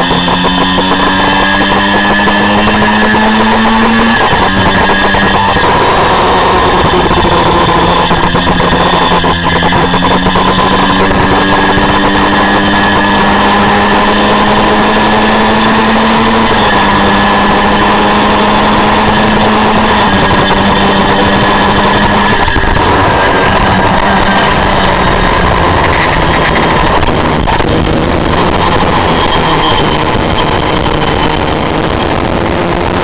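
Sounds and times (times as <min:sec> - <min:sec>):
heavy wind rush: 0:00.0 - 0:33.0
motorcycle engine at race speed: 0:00.0 - 0:33.0.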